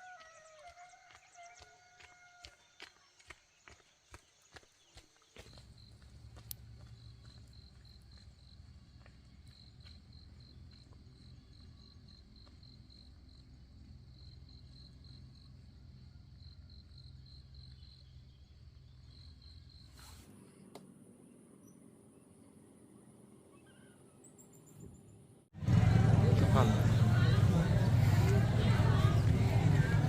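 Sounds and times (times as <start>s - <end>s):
cricket chirping: 5.2s - 20.0s
low steady rumble: 24.2s - 30.0s.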